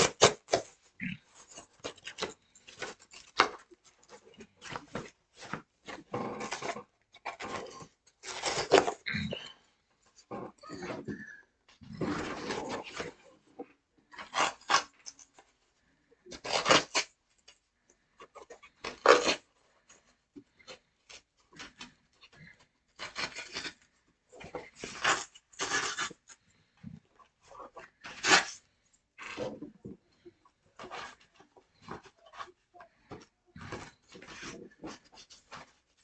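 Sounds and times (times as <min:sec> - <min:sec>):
cardboard packaging tearing: 0:00.0 - 0:00.8, 0:04.5 - 0:09.0, 0:14.2 - 0:15.3, 0:16.3 - 0:17.2, 0:18.4 - 0:19.5, 0:23.0 - 0:26.4, 0:27.6 - 0:29.6.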